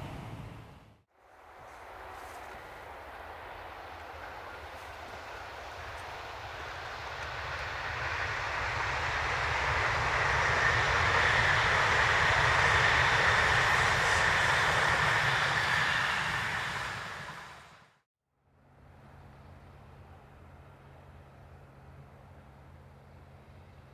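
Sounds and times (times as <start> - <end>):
train rushing past with whine: 0.0 - 18.0.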